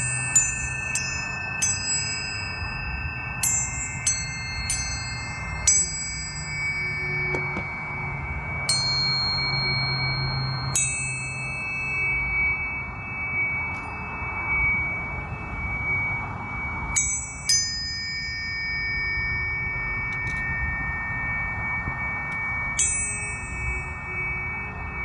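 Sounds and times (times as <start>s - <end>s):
tuning forks ringing: 0.0s - 25.0s.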